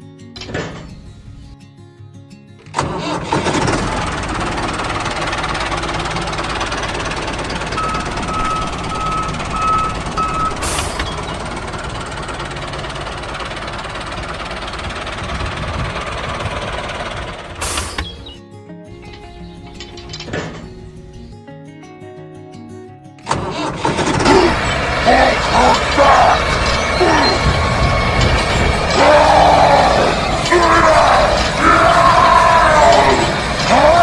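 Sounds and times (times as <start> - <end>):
heavy vehicle engine running: 2.6 - 18.4, 23.3 - 34.0
beeper beeping: 7.7 - 11.9.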